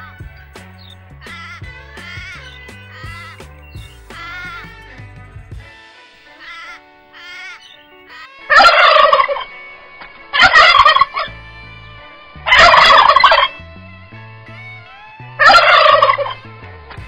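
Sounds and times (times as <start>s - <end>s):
loud rattling bird calls: 0.0s - 4.8s.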